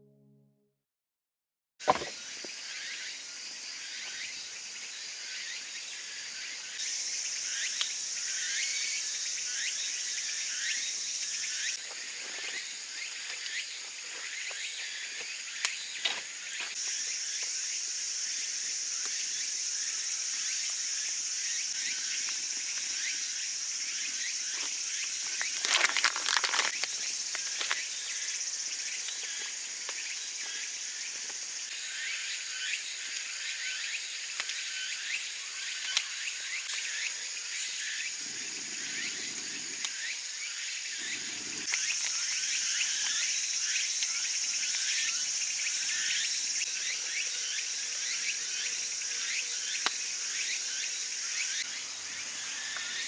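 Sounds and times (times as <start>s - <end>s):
bacon sizzling over campfire: 21.7s - 30.6s
fire crackles and pops: 24.5s - 27.9s.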